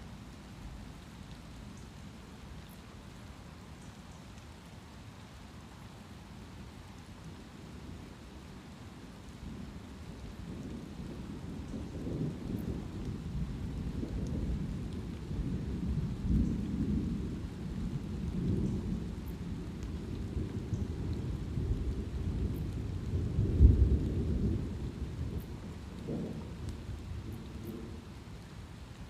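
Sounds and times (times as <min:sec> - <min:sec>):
light rain: 0:00.0 - 0:29.0
thunder rumbling: 0:10.4 - 0:28.4.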